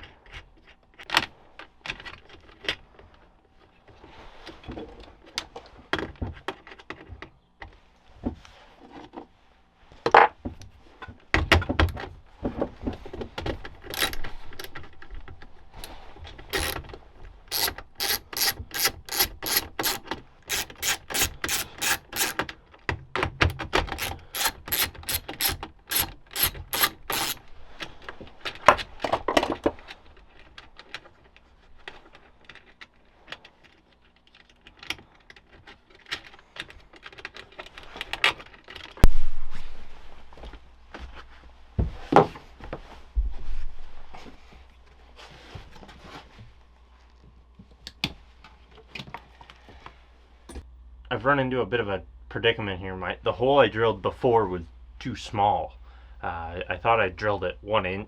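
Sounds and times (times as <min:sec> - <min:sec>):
ratchet wrench clicking: 0:14.0 - 0:14.8, 0:16.6 - 0:16.8, 0:17.5 - 0:22.4, 0:23.9 - 0:27.4.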